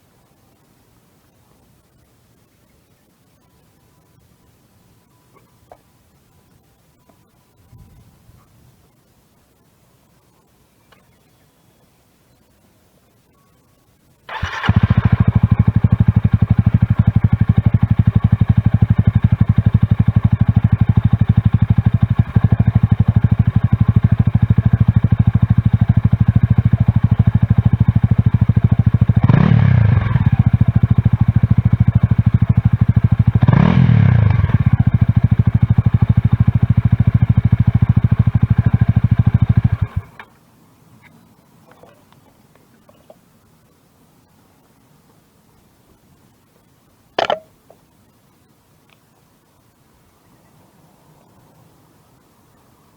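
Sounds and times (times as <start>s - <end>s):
motorcycle engine idling and revving: 14.3s - 40.3s.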